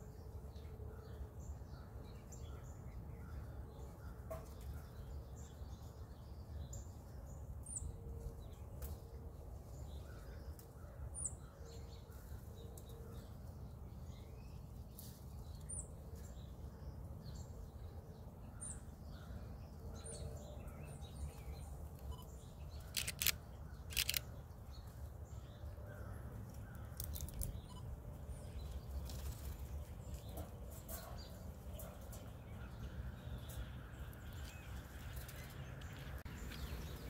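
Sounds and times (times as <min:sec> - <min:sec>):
low outdoor rumble: 0:05.2 - 0:37.0
small birds chirping: 0:18.6 - 0:37.0
sharp clicks: 0:22.9 - 0:24.3.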